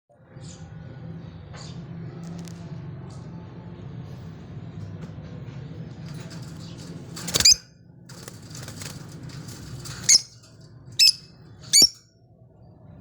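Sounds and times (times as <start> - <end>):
low steady hum: 0.8 - 13.0
lovebirds shrill calls: 7.3 - 7.6, 10.0 - 10.4, 11.0 - 12.0
faint bird chattering: 11.0 - 12.0.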